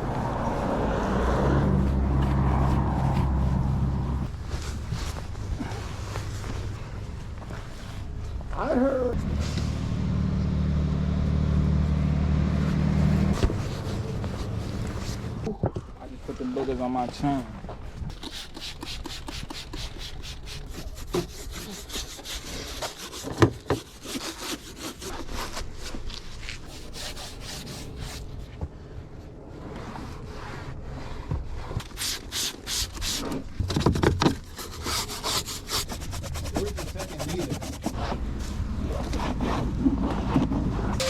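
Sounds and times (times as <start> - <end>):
towel rubbing car paint: 18.1 - 28.4, 29.8 - 33.6, 34.4 - 38.4.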